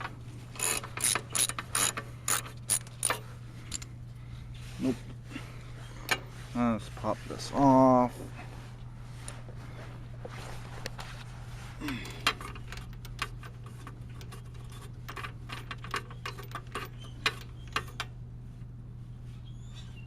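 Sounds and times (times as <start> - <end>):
steady low hum: 0.0 - 20.0
socket ratchet clicking: 0.6 - 3.8.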